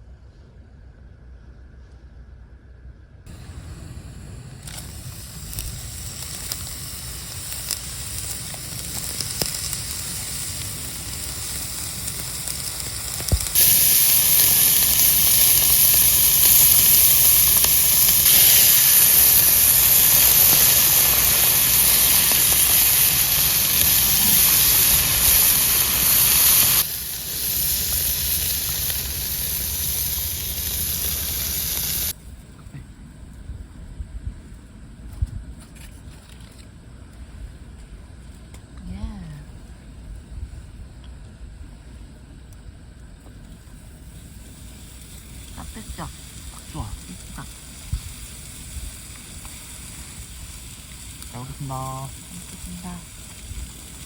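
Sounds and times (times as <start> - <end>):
camp stove hissing: 3.3 - 32.2, 41.7 - 54.0
food sizzling: 3.3 - 32.2, 43.5 - 54.0.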